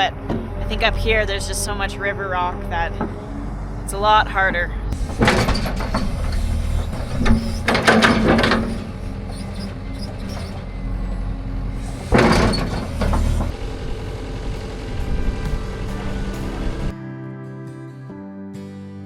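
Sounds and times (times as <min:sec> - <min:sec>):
heavy machine engine running: 0:00.0 - 0:17.0
metal scraping against rock: 0:04.9 - 0:13.5.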